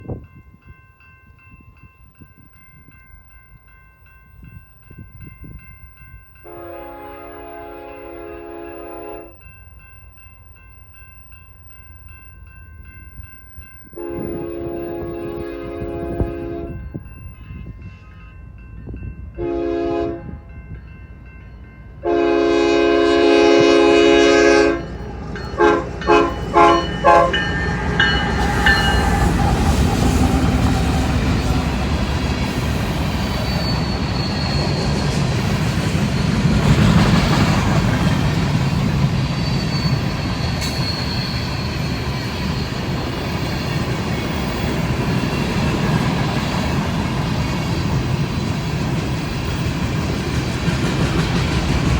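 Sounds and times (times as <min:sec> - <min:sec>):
train rumbling over rails: 0:01.4 - 0:51.9
locomotive air horn blasts: 0:06.4 - 0:09.4, 0:14.0 - 0:16.9, 0:19.4 - 0:20.5, 0:22.0 - 0:24.9, 0:25.6 - 0:27.5.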